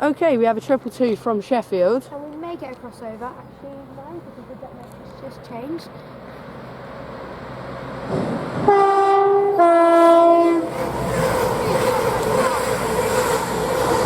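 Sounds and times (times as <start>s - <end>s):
train running past: 0.0s - 14.0s
two-tone train horn: 8.6s - 10.8s.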